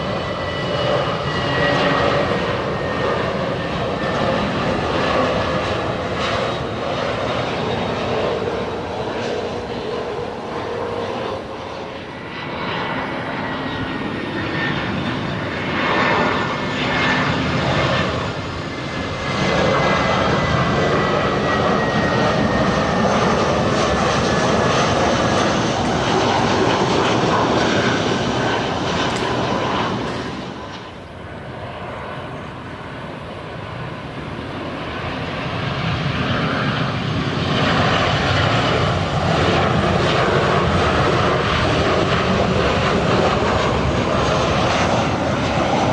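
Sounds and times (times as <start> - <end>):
faint engine whine: 0.0 - 45.9
jet engines running: 0.0 - 45.9.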